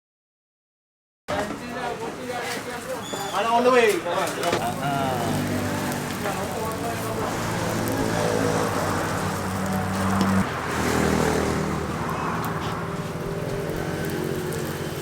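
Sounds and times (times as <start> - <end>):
road noise: 1.3 - 15.0
car engine running: 4.5 - 15.0.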